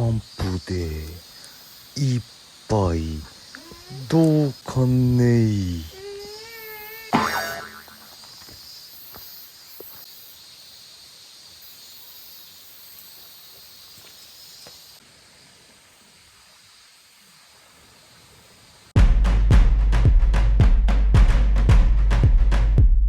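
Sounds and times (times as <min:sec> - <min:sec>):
high-pitched outdoor hiss: 0:00.0 - 0:19.0
faint ticks: 0:01.3 - 0:01.7.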